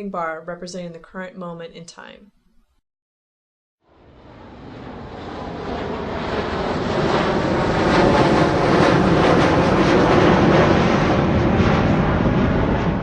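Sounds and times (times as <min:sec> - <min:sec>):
jet plane taking off: 0:03.8 - 0:13.0.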